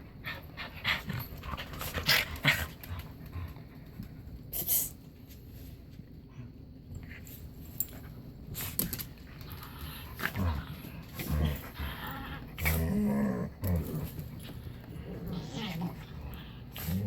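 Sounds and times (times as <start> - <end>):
dog growling: 9.6 - 17.0.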